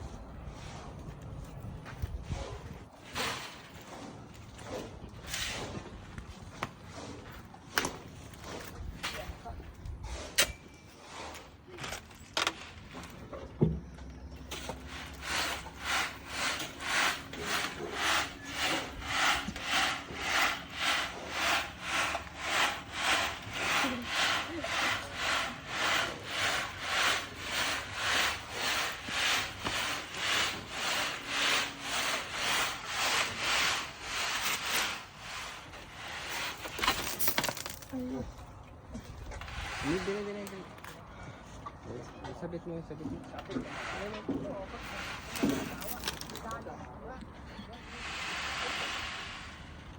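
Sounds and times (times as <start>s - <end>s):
sand sifting across a screen: 14.6s - 36.6s, 39.5s - 40.6s, 43.7s - 46.5s, 47.8s - 49.9s.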